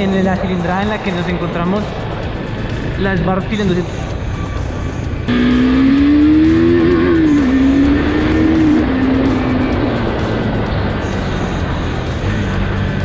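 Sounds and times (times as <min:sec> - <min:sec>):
motorcycle engine accelerating: 0:05.2 - 0:13.0.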